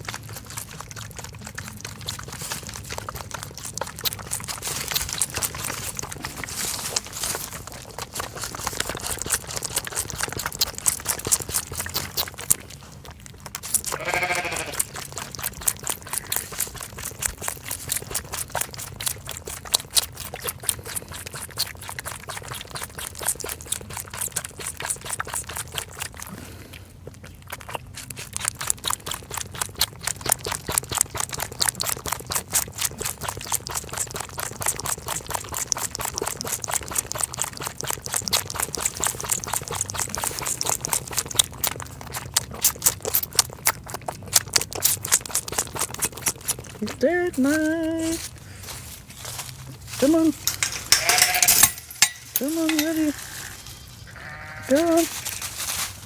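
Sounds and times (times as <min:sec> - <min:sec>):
lamb sucking from bottle: 0:00.0 - 0:56.0
lamb bleating: 0:13.8 - 0:15.0, 0:50.6 - 0:55.4.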